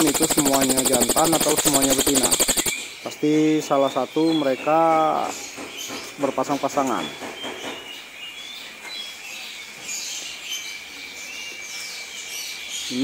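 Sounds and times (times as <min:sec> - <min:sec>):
steady high-pitched drone: 0:00.0 - 0:03.0
birds chirping and twittering: 0:00.0 - 0:13.0.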